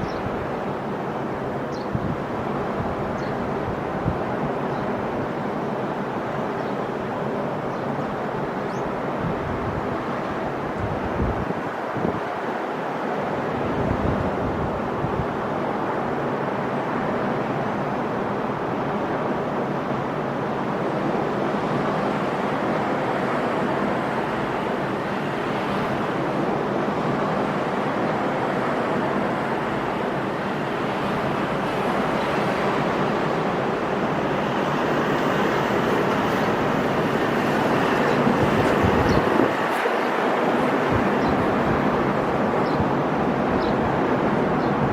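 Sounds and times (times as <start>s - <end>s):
wind buffeting microphone: 0.0s - 5.3s, 8.2s - 12.4s, 13.6s - 16.1s, 23.7s - 44.9s
sea surf washing on shore: 0.0s - 44.9s.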